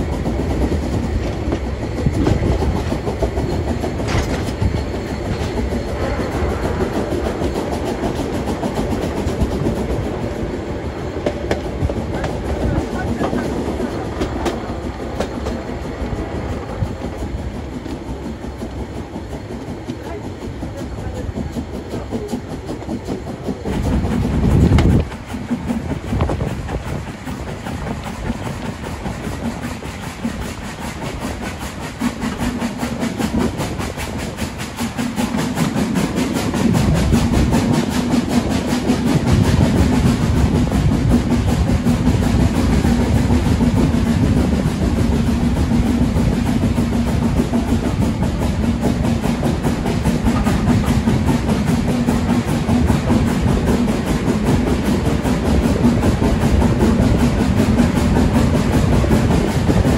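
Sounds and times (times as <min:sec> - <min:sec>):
train wheels clattering on track: 0:00.0 - 0:59.9.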